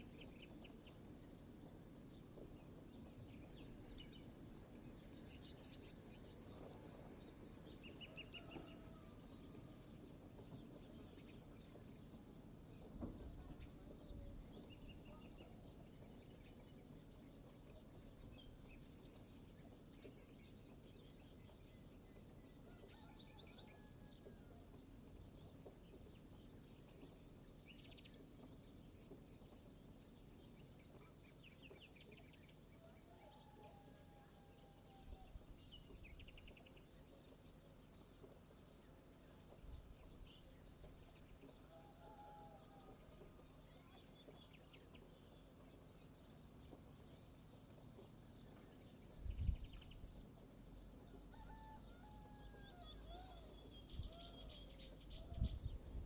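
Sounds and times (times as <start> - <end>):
birds chirping and trilling: 35.1 - 56.0.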